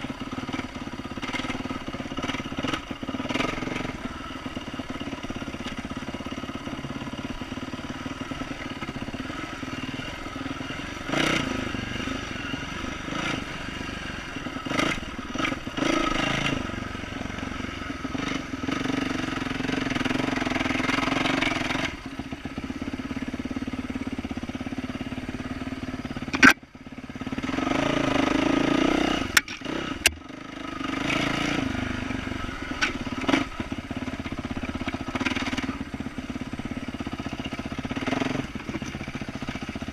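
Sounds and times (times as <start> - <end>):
motorcycle engine revving: 0.0 - 39.9
sharp clicks: 26.3 - 26.6.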